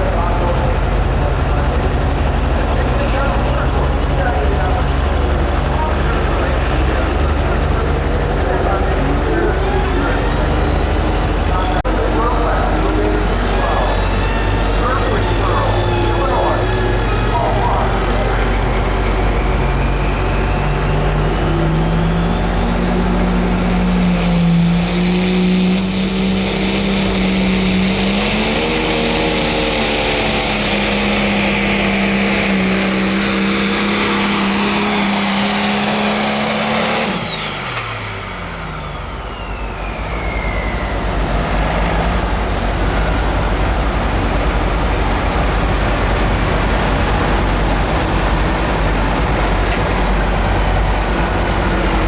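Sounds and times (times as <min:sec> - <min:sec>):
diesel tractor engine under load: 0:00.0 - 0:52.0
steady loud noise: 0:00.0 - 0:52.0
high turbo whistle: 0:13.0 - 0:42.1.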